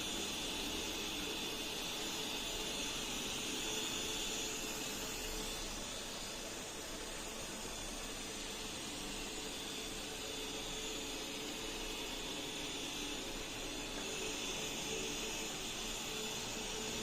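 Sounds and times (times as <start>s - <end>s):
robot vacuum fan hissing: 0.0s - 17.0s.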